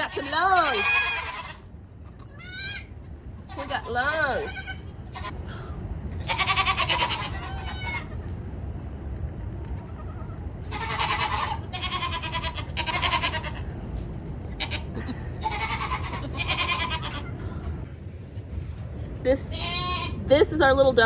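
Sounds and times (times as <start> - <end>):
goat kids bleating: 0.0 - 5.4, 6.2 - 8.3, 9.8 - 13.8, 14.5 - 17.8, 19.5 - 20.3
steady low rumble: 0.0 - 21.0.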